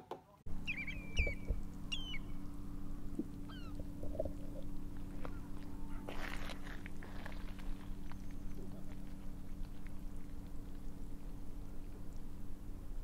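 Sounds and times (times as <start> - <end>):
birds calling: 0.5 - 9.4
steady low hum: 0.5 - 13.0.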